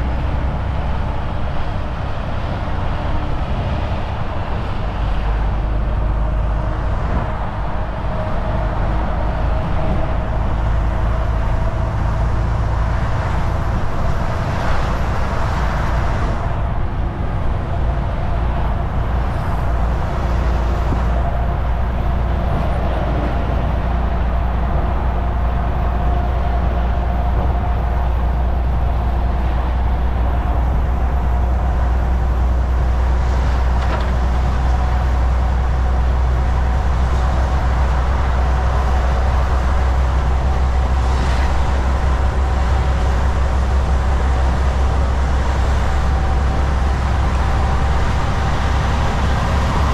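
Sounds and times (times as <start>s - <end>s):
truck engine drone: 0.0s - 49.9s
tyre and road noise: 0.0s - 49.9s.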